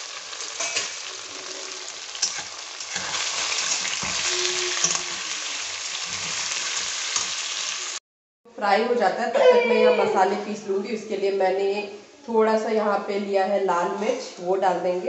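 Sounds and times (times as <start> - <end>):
dough sizzling in hot oil: 0.0 - 8.0.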